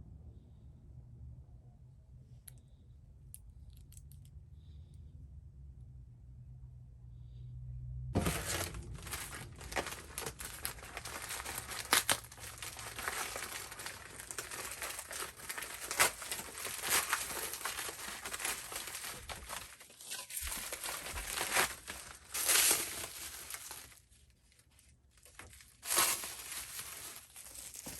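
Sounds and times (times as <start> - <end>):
paper crinkling and crackling: 8.2 - 27.9.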